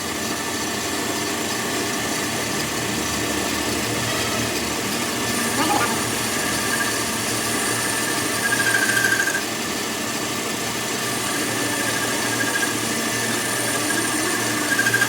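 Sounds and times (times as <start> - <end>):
small power tool whining: 0.0 - 15.0.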